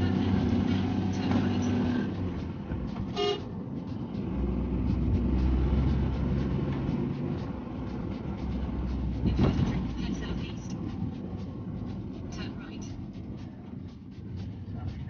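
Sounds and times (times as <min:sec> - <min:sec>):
vehicle engine drone: 0:00.0 - 0:15.0
vehicle horn toot: 0:03.1 - 0:03.5.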